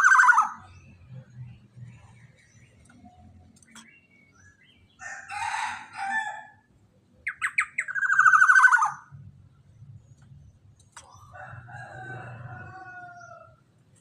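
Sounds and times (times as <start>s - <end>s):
bird harsh raspy call: 0.0s - 0.7s, 7.3s - 9.1s.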